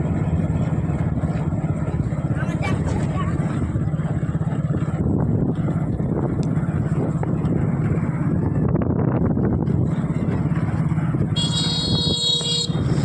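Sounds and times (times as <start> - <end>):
motorcycle engine running: 0.0 - 13.0
wind buffeting microphone: 0.0 - 13.0
high multi-toned horn: 11.4 - 13.0.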